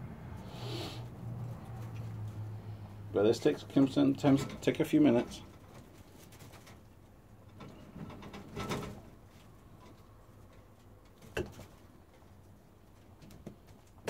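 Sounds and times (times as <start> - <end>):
rustle: 0.4 - 2.9.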